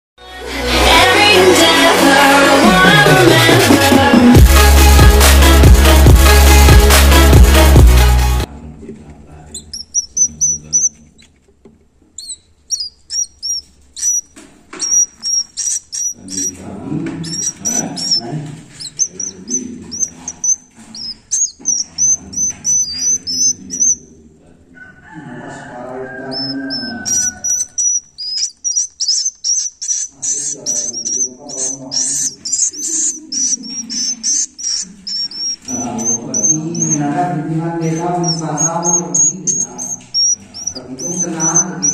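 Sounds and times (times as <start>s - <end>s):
swiftlet chicks chirping: 9.6s - 11.3s, 12.2s - 24.1s, 25.9s - 41.9s.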